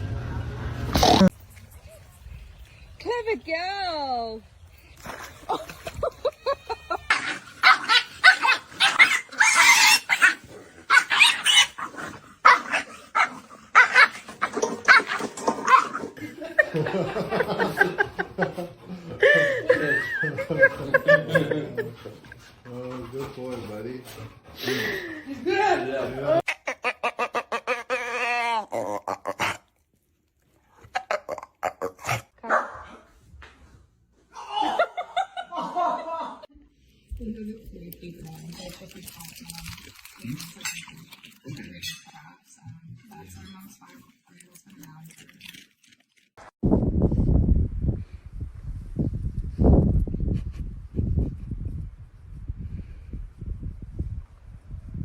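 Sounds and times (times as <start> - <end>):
dog barking and yipping: 7.1 - 16.1, 32.4 - 33.0
dog barking: 32.4 - 33.0.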